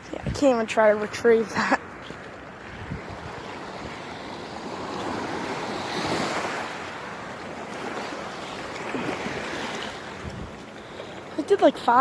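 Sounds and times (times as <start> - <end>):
wind on microphone: 0.0 - 1.0, 2.5 - 7.0, 8.9 - 10.7
small waves washing ashore: 0.0 - 12.0.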